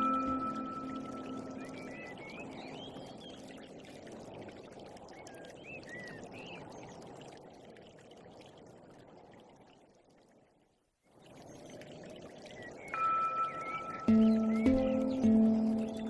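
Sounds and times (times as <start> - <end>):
running water rushing: 0.0 - 9.8, 11.1 - 16.0.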